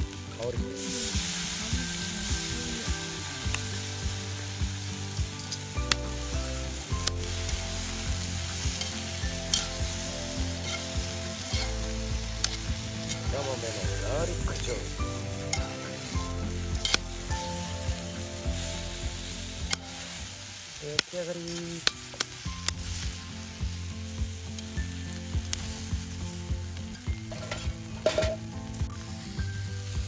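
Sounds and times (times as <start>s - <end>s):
food frying in oil sizzling: 0.0s - 30.0s
metal tongs clicking on pan: 8.8s - 9.8s, 10.6s - 10.9s, 16.8s - 17.0s.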